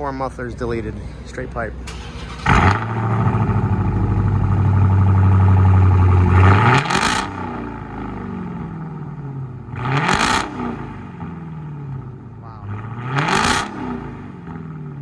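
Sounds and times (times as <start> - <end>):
vee-eight engine idling and revving: 0.0 - 15.0.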